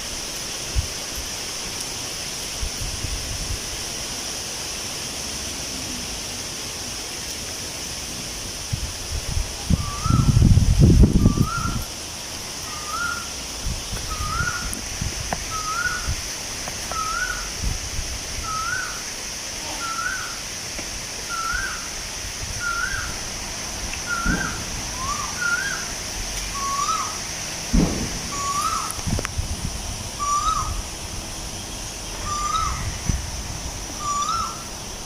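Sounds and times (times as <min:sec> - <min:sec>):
high insect drone: 0:00.0 - 0:35.0
soft gusts of wind: 0:00.0 - 0:35.0
bird whistling upslurred note: 0:09.8 - 0:10.4, 0:14.1 - 0:14.6, 0:22.6 - 0:23.1, 0:24.1 - 0:25.8, 0:26.6 - 0:27.1, 0:28.3 - 0:29.0, 0:30.2 - 0:30.8, 0:32.2 - 0:32.8, 0:34.0 - 0:34.6.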